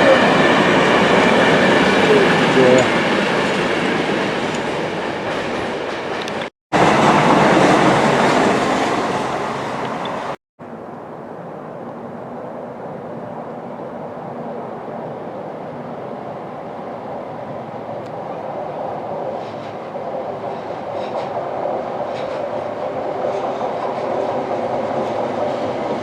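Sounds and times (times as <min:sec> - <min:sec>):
train wheels on rail: 0:00.0 - 0:10.4, 0:19.0 - 0:26.0.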